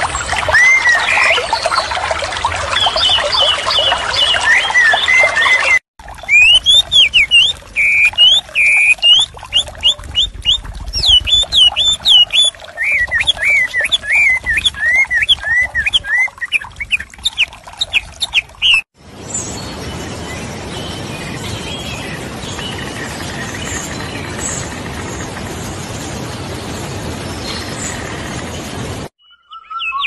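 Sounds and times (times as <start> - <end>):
small birds chirping: 6.3 - 18.8.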